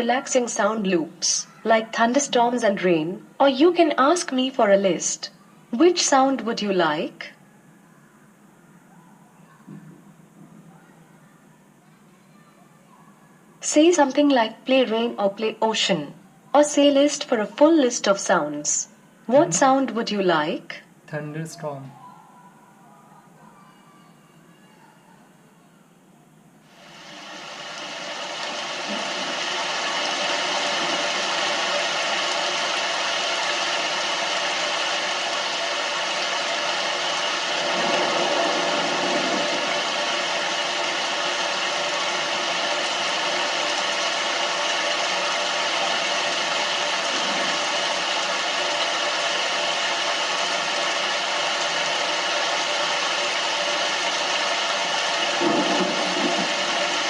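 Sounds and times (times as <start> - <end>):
rain hiss through small speaker: 0.0 - 22.0, 26.3 - 57.0
low thunder rumble: 37.3 - 43.7, 55.2 - 57.0.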